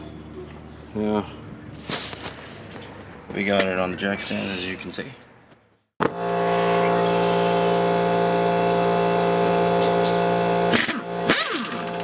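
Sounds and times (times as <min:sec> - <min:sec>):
motor humming: 0:06.0 - 0:12.0.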